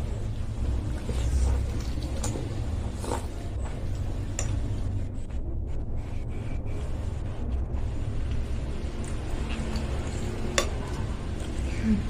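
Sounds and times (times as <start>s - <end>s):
low rumble: 0.0s - 12.0s
chewing: 0.9s - 3.4s, 8.2s - 11.8s
slurping soup: 1.0s - 3.4s.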